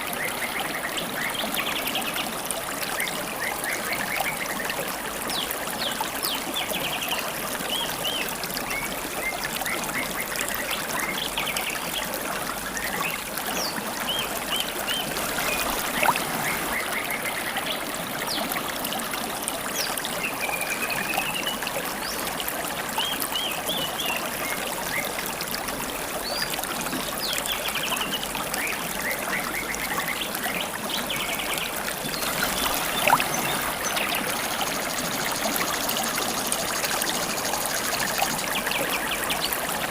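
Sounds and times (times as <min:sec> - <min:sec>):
river water babbling: 0:00.0 - 0:39.9
songbirds chirping: 0:26.2 - 0:39.9.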